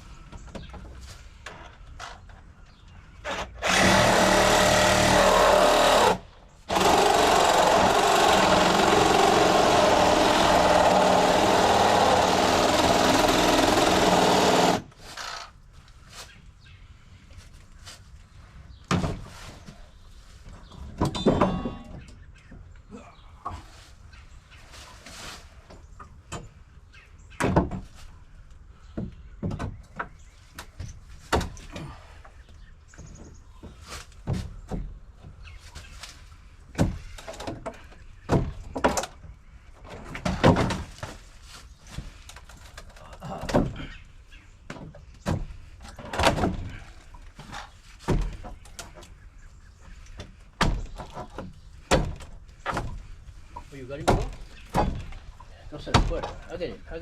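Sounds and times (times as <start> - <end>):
power tool running: 3.3 - 15.5
knocks and thuds on a deck: 18.8 - 19.3, 27.4 - 28.0, 28.9 - 30.2, 36.7 - 39.2, 39.8 - 41.2, 44.7 - 46.8, 47.4 - 48.6, 50.2 - 53.1, 54.0 - 55.2, 55.8 - 56.4.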